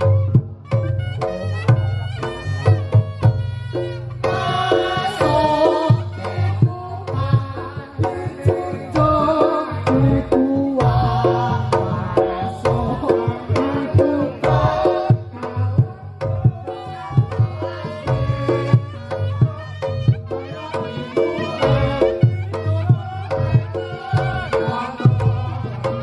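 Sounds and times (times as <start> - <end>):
reedy wind instrument melody: 0.0 - 6.8, 14.6 - 26.0
rapid hand drum strokes: 0.0 - 26.0.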